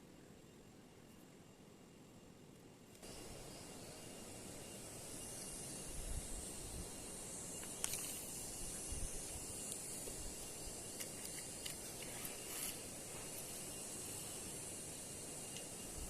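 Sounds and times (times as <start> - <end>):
small sharp clicks: 7.6 - 8.3.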